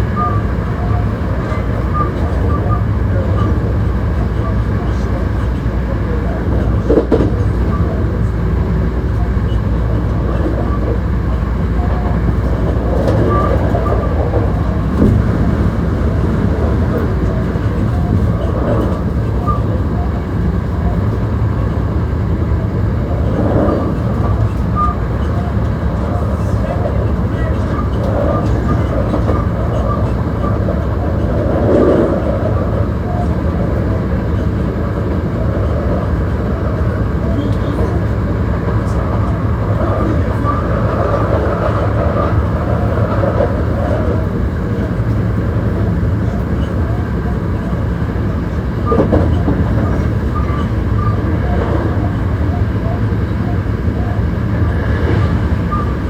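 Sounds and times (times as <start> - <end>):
train wheels rumbling on rails: 0.0 - 56.0
clatter over rail joints: 9.0 - 21.9, 22.5 - 53.6.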